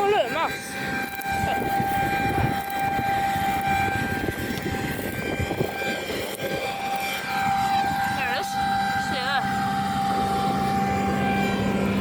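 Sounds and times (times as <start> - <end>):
high machinery whine: 0.0 - 12.0
rough engine rumble: 0.0 - 12.0.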